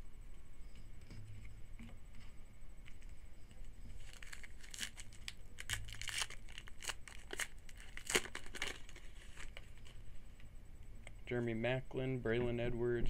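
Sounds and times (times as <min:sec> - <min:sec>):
foil wrapper tearing and crinkling: 0:04.0 - 0:09.9.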